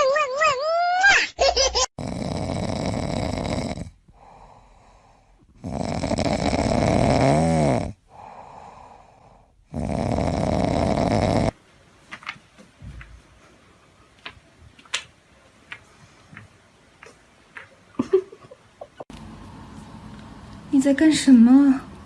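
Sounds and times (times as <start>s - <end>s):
loud snoring: 2.0s - 4.6s, 5.5s - 11.6s
quiet in-breaths: 4.1s - 5.6s, 8.0s - 9.7s.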